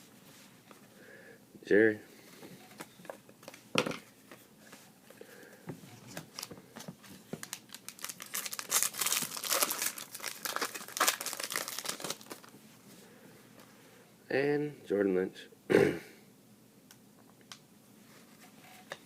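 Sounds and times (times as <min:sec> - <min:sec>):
plastic packaging crinkling: 0:06.1 - 0:12.5.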